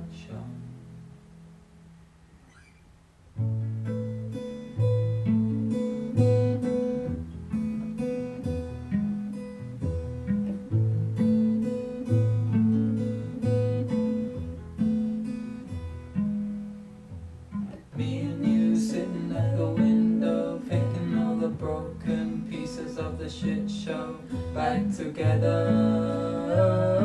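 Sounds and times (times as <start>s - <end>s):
acoustic guitar strumming: 0.0s - 27.0s.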